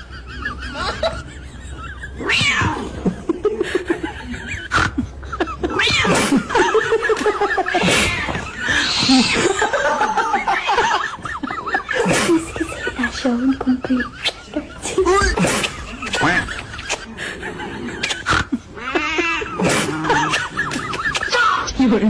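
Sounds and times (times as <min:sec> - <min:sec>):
person laughing: 0:00.0 - 0:21.7
cat yowling: 0:02.2 - 0:03.0, 0:05.7 - 0:06.4.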